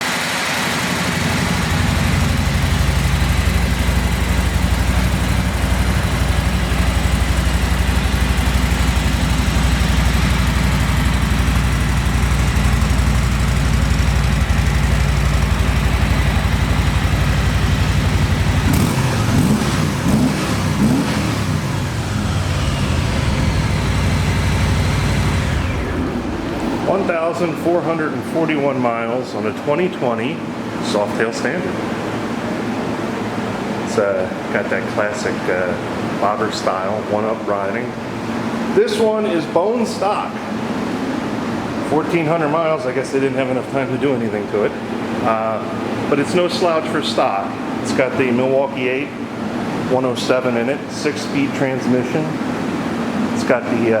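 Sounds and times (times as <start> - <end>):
motorcycle engine idling and revving: 0.0 - 27.2.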